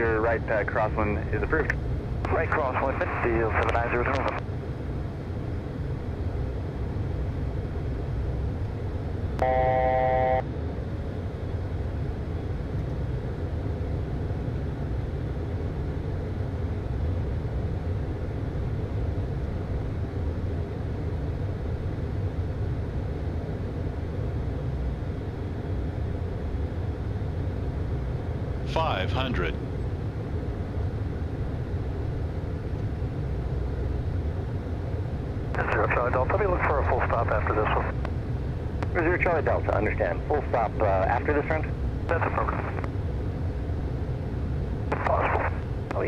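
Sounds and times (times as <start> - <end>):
jet engine and airflow rumble: 0.0 - 46.0
electronic tone: 9.4 - 10.5.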